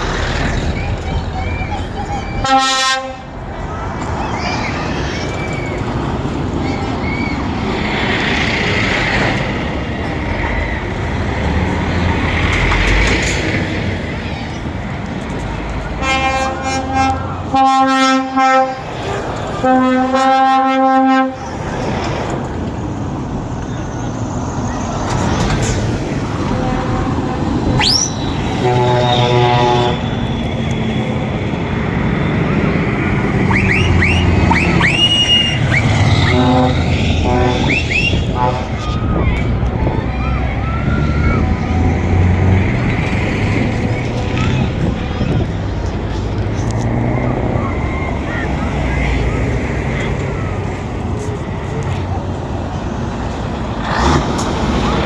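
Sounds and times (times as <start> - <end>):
lorry engine rumble: 0.0 - 55.0
road noise: 0.0 - 55.0
lorry air horn blasts: 2.4 - 3.3, 16.0 - 18.8, 19.6 - 21.4, 26.5 - 30.0, 33.5 - 38.8
high rising whistles: 4.1 - 9.4, 27.6 - 42.5.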